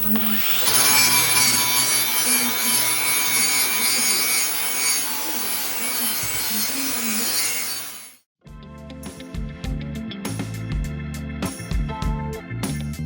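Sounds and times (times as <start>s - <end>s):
abrasive scrubbing rusty metal: 0.1s - 8.2s.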